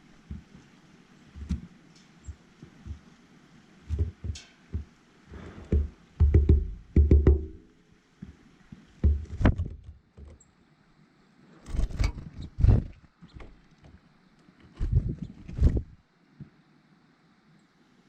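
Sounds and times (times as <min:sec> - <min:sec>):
dull knocks and thumps: 0:00.1 - 0:00.7, 0:01.3 - 0:03.2, 0:03.9 - 0:10.4.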